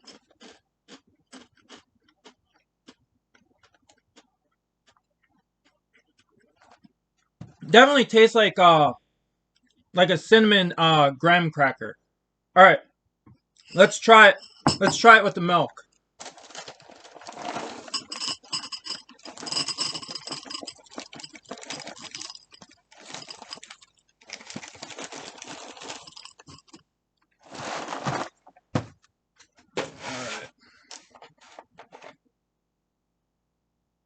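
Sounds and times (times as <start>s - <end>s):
spoon clinking against bowl: 17.9s - 22.6s.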